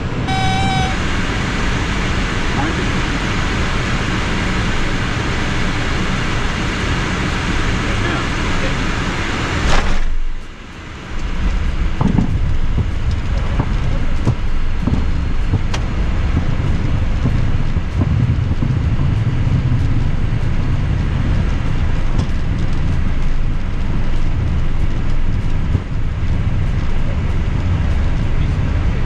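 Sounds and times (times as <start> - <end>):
jet engine rumble: 0.0 - 29.0
wheels running over pavement: 11.0 - 29.0.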